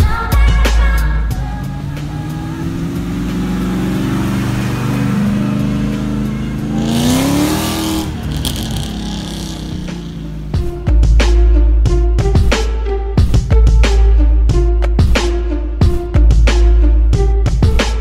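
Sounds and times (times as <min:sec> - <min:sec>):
car engine accelerating: 0:00.7 - 0:11.1.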